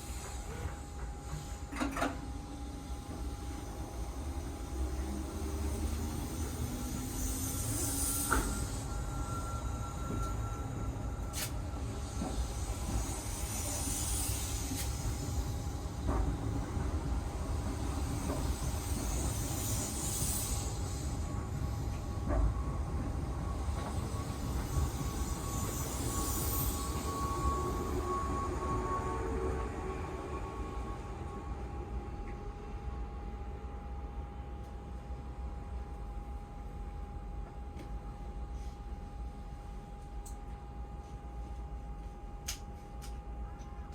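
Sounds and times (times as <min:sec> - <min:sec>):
train equipment hum: 0:00.0 - 0:43.9
high hiss: 0:05.1 - 0:10.7, 0:11.3 - 0:16.0, 0:17.6 - 0:22.2.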